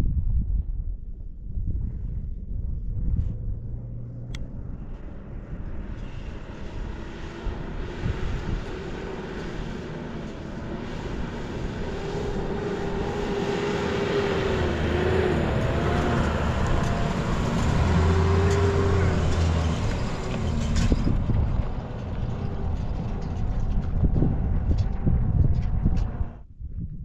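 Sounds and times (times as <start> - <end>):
vehicle engine running: 2.6 - 26.5.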